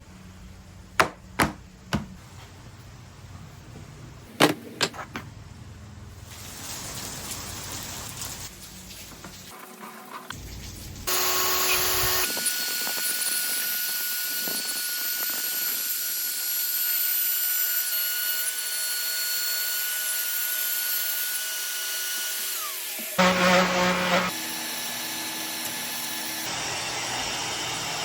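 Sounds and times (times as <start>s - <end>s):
power tool motor whining: 11.1s - 16.2s, 21.6s - 28.0s
loud machining noise: 20.6s - 28.0s.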